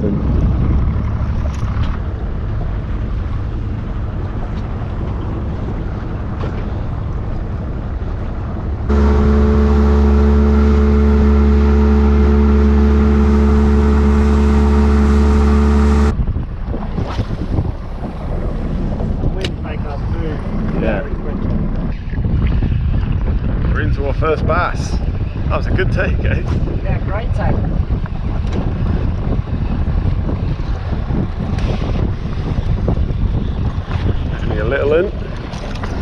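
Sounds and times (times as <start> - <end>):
water noise: 0.0 - 23.4
wind: 0.0 - 36.0
outboard motor running: 8.8 - 16.2.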